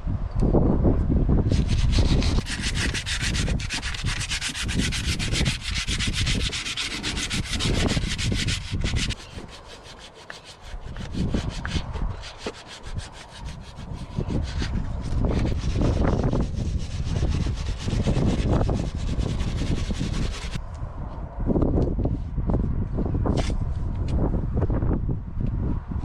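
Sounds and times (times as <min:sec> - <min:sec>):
hand sanding metal: 0:01.5 - 0:20.6.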